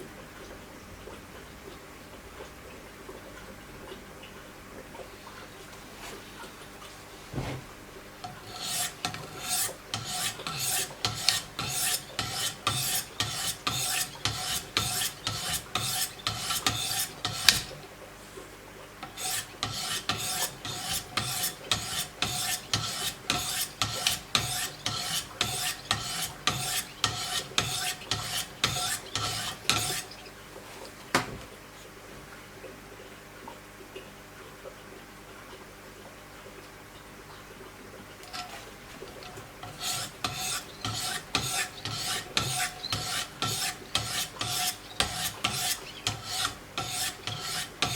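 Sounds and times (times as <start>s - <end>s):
sharpening stones rasping on blade: 8.5s - 17.7s, 19.0s - 30.1s, 39.6s - 47.9s.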